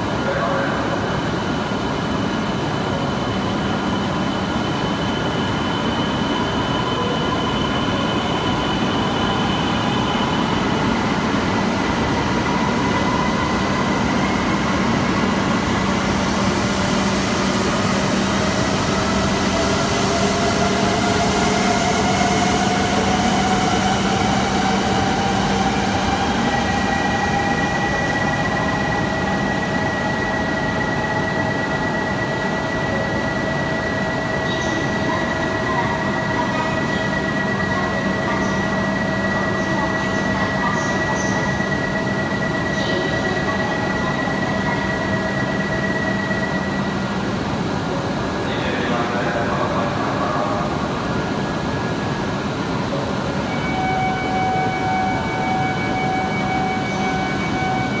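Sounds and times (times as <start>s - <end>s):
steady high tone: 53.3s - 58.0s.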